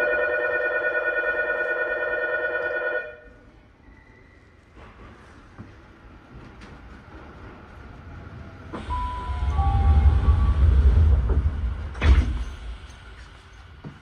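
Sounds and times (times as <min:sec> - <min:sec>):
railway rumble: 0:03.2 - 0:14.0.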